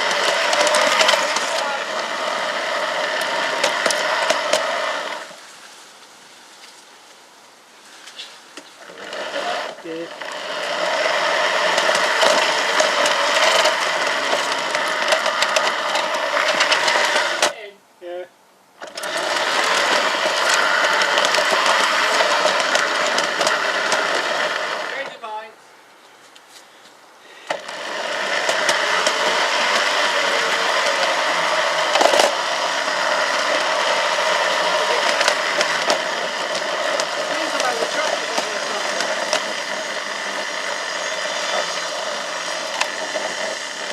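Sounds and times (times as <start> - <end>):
model locomotive drive whirring: 0.0 - 5.4, 8.6 - 17.6, 18.8 - 25.2, 27.4 - 43.9
wheels clicking over rails: 0.0 - 5.4, 8.6 - 17.6, 18.8 - 25.2, 27.4 - 43.9.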